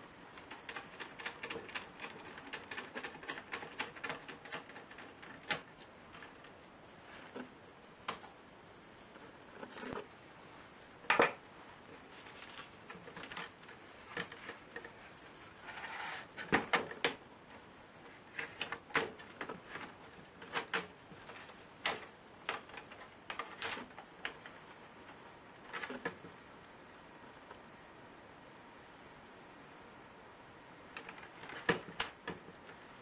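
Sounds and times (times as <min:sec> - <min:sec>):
laptop parts clicking and tapping: 0:00.4 - 0:06.6, 0:16.3 - 0:17.2, 0:18.3 - 0:24.6, 0:30.9 - 0:32.8.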